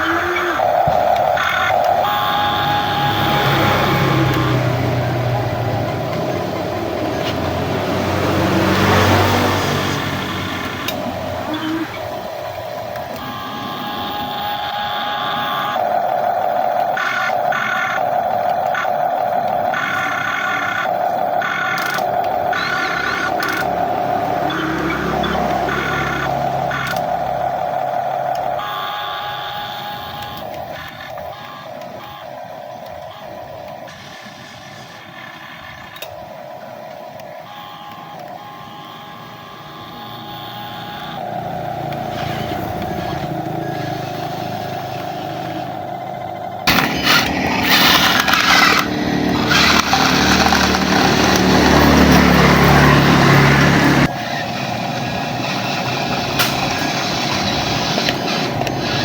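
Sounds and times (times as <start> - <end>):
small electric motors whining: 0.0 - 59.0.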